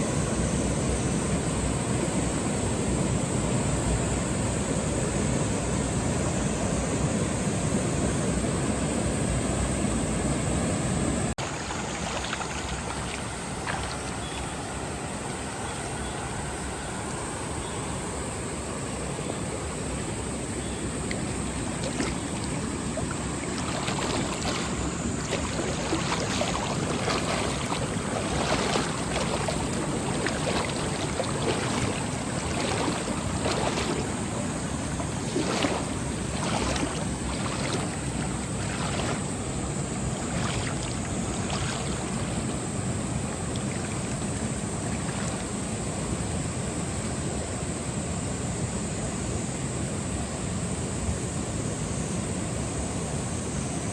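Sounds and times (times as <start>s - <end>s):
stream rushing over rocks: 11.4s - 15.4s, 19.5s - 45.6s.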